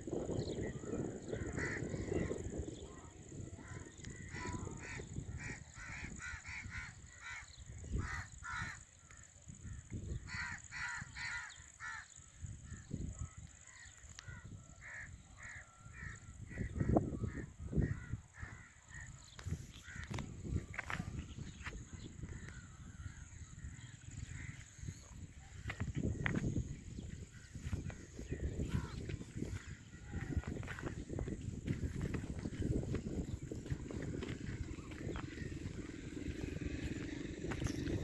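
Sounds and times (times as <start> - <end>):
birds calling: 0.1 - 38.0
low rumble on microphone: 16.4 - 38.0.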